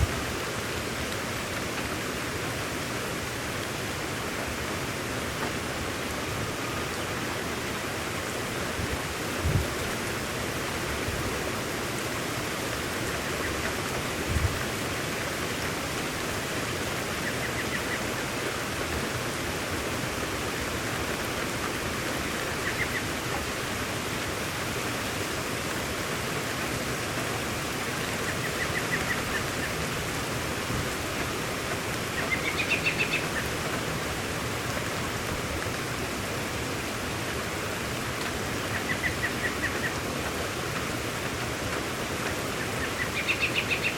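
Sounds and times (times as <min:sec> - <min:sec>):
steady rain falling: 0:00.0 - 0:43.9
low thumps: 0:08.8 - 0:09.8, 0:14.3 - 0:14.6.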